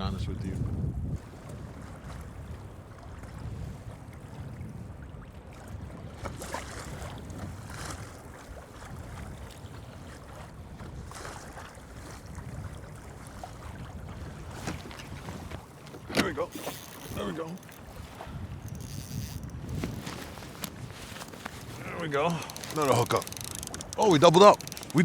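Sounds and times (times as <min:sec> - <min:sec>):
water lapping against kayak: 0:00.0 - 0:25.0
wind rumbling on microphone: 0:00.0 - 0:25.0
water splashing: 0:11.1 - 0:25.0.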